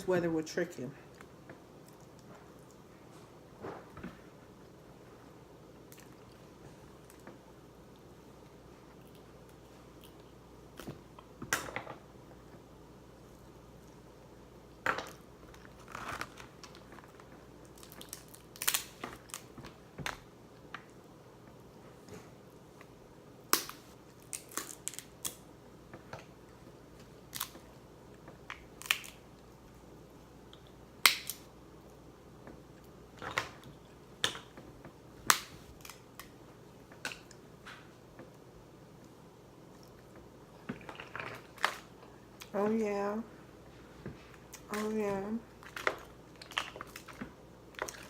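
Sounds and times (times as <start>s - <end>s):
chewing: 5.9s - 7.2s, 8.8s - 10.9s
seafood shells cracking: 17.6s - 19.5s, 23.5s - 25.4s, 28.5s - 29.2s.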